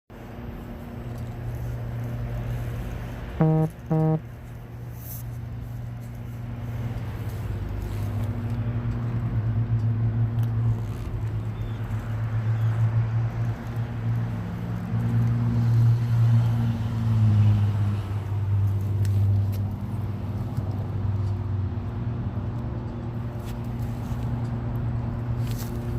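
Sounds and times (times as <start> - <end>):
car engine droning: 0.3 - 25.9.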